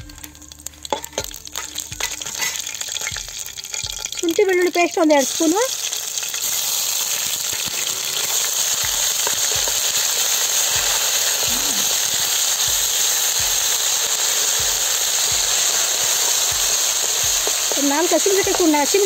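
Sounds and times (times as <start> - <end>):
paste sizzling in hot oil: 0.0 - 19.0.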